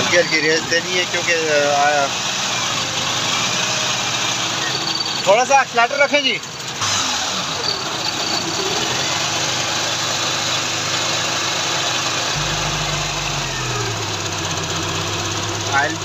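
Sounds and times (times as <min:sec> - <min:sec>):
petrol engine running: 0:06.4 - 0:16.0.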